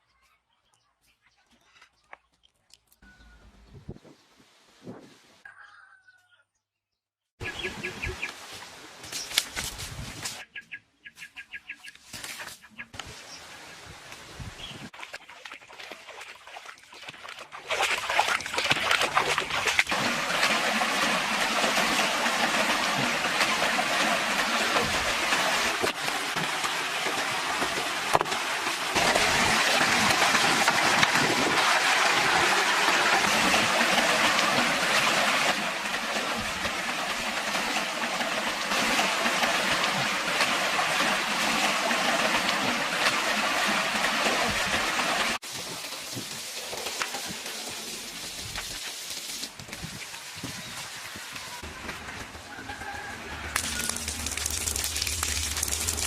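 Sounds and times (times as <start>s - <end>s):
rushing splashing water: 14.6s - 56.0s.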